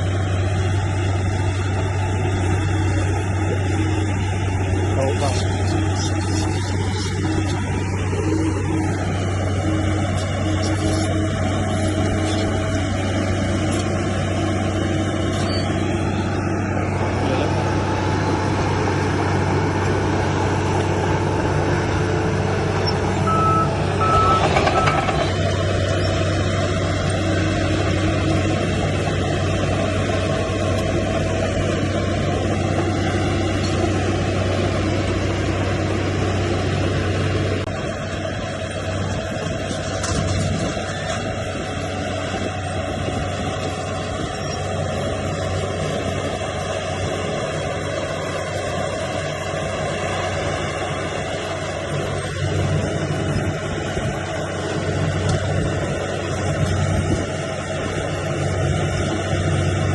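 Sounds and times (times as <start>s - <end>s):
heavy diesel machinery running: 0.0s - 59.9s
reversing alarm beeps: 23.2s - 25.3s.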